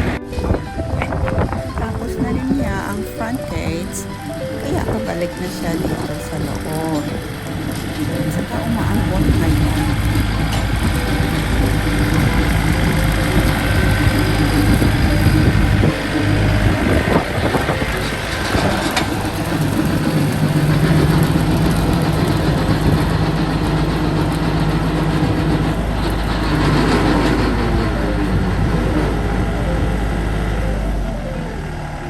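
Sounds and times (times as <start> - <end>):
diesel tractor engine running: 0.0 - 32.0.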